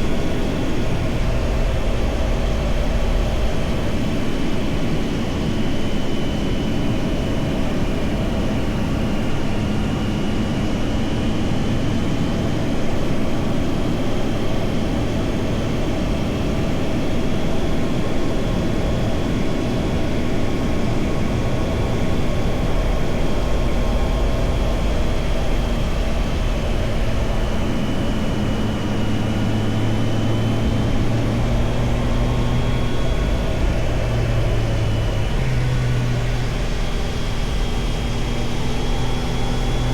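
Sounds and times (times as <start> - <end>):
motorcycle engine running: 19.8 - 39.9.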